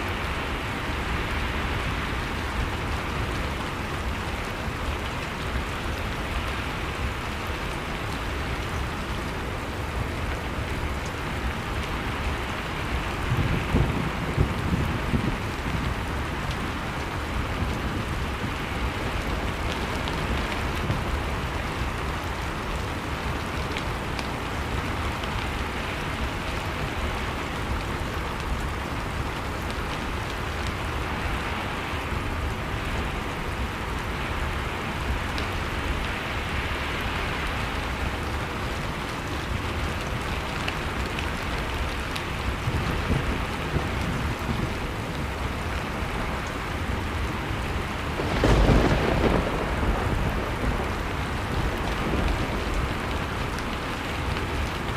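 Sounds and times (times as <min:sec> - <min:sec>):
wood fire crackling: 0:32.0 - 0:54.9.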